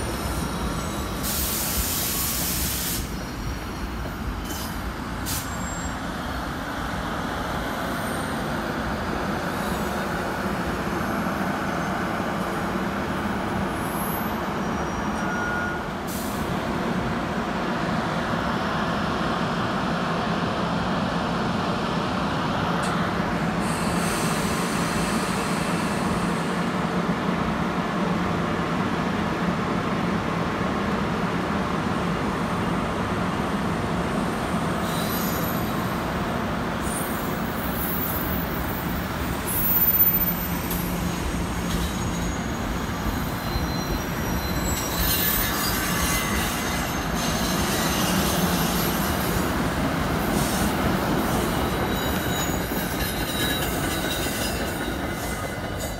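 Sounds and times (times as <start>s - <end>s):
train wheels rumbling on rail: 0.0s - 55.9s
wheel squeals: 4.4s - 6.0s, 13.8s - 15.8s, 34.8s - 36.0s, 36.8s - 49.6s, 50.2s - 55.9s.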